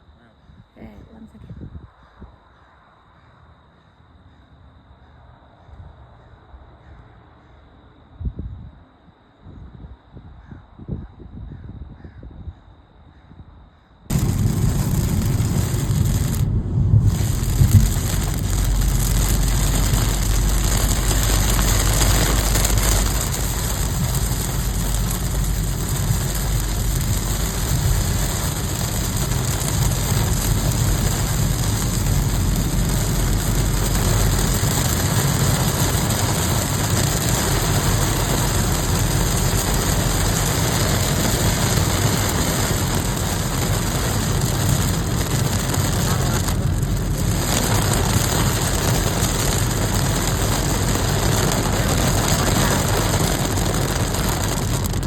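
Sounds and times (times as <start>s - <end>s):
heavy rain hissing: 14.1s - 55.0s
low rumble: 14.1s - 55.0s.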